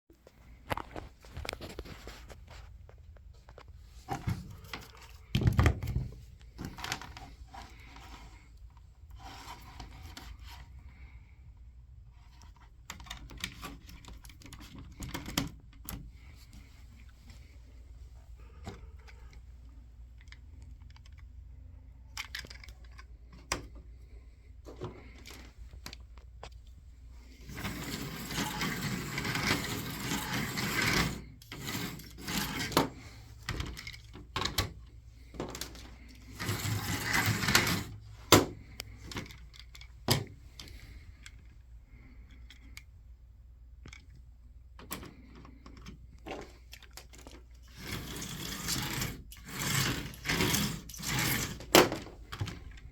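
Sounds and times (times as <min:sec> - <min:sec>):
small motors and wheels rattling: 0:27.4 - 0:34.0, 0:36.0 - 0:38.0, 0:47.6 - 0:51.8
slot cars running on plastic track: 0:27.5 - 0:32.9, 0:36.3 - 0:38.0, 0:47.7 - 0:51.7.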